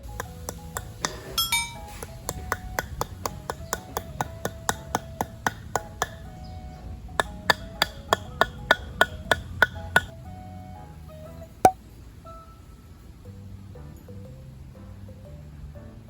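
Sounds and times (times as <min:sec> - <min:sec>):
hammer striking metal pegs: 0:00.0 - 0:06.3, 0:07.2 - 0:10.1
background music: 0:00.0 - 0:16.0.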